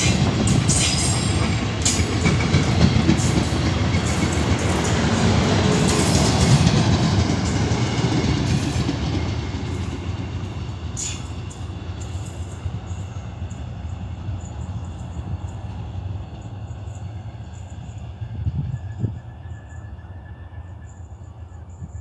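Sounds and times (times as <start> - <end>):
train coaches rumbling past: 0.0 - 22.0.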